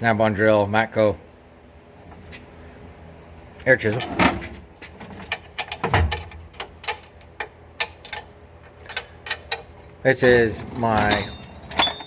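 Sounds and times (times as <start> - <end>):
metal tools clinking: 8.9 - 12.0.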